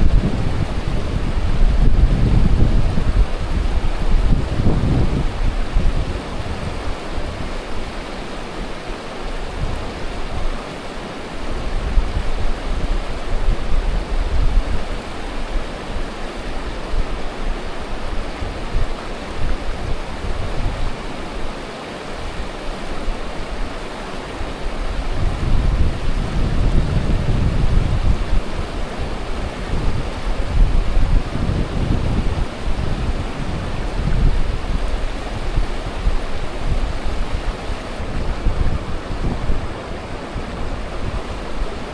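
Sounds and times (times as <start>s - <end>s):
wind buffeting microphone: 0.0s - 7.5s, 25.1s - 28.5s, 36.7s - 41.9s
low rumbles: 38.0s - 41.9s.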